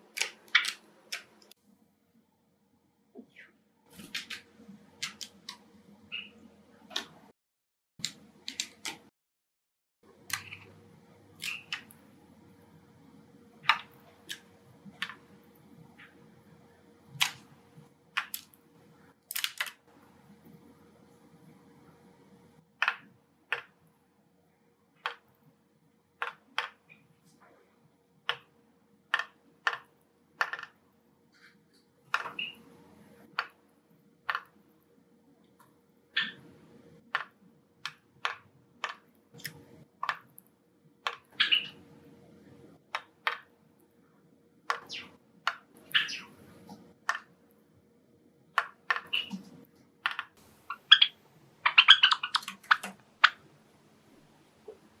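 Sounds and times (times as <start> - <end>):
sparrows chip calls and clicks: 6.1 - 6.4, 11.4 - 11.8, 32.3 - 32.6, 41.4 - 41.8, 44.8 - 45.1, 45.9 - 46.3, 49.0 - 49.4, 50.7 - 53.4.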